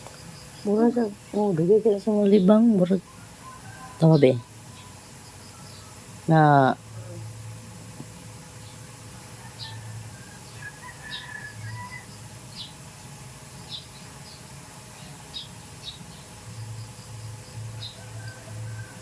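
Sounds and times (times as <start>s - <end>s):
small bird chirping: 0.0s - 6.1s, 9.5s - 12.8s, 13.6s - 18.9s.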